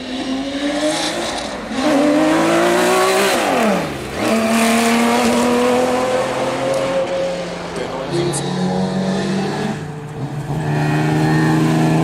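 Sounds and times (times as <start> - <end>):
car engine revving high: 0.0 - 12.0.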